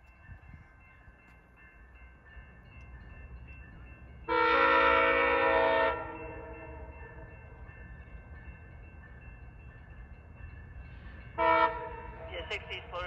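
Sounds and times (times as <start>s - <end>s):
moving train rumble: 0.0s - 13.0s
train air horn blast: 4.3s - 6.6s, 11.4s - 12.0s.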